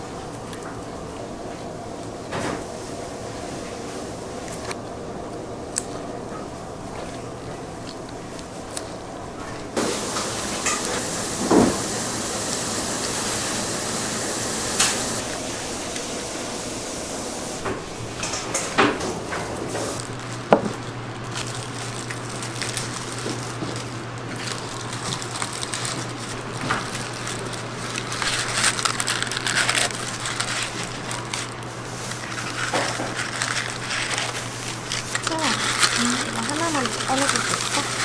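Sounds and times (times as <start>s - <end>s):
steady hiss: 9.8s - 18.8s
crackly rustling: 17.8s - 38.0s.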